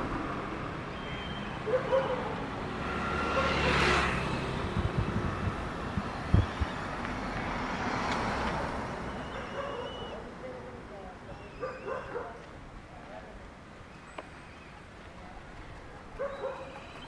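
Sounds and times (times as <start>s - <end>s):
vehicle passing: 0.0s - 12.3s
road traffic: 0.0s - 17.0s.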